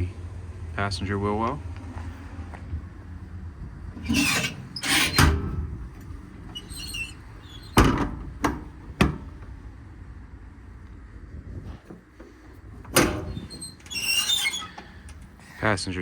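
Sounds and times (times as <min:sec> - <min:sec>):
door scraping: 0:03.9 - 0:09.4, 0:12.9 - 0:15.1
faint squeak: 0:04.0 - 0:05.6, 0:06.6 - 0:08.0, 0:13.2 - 0:15.0.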